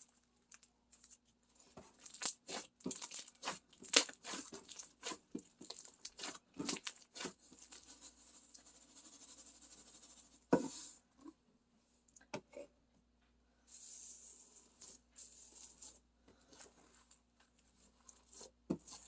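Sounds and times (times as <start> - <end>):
slime crackling and popping: 2.0 - 7.3.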